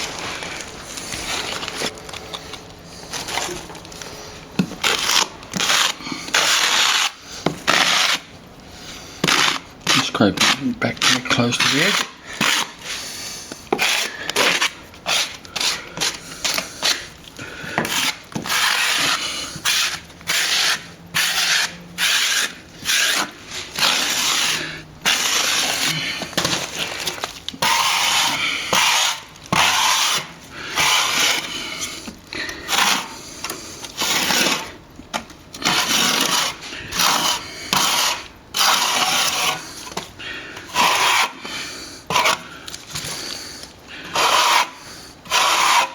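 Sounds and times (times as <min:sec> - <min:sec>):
blade scraping plaster: 0:03.1 - 0:45.9.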